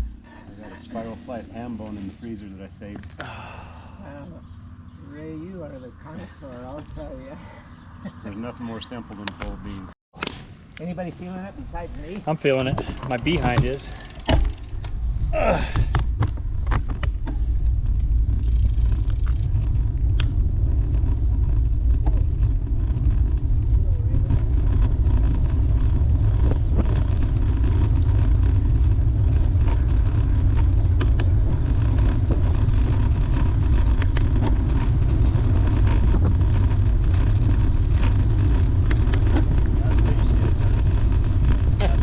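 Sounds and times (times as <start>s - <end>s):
bicycle tyre and road noise: 0.0s - 10.0s, 10.8s - 42.0s
wind rumble on microphone: 11.5s - 42.0s.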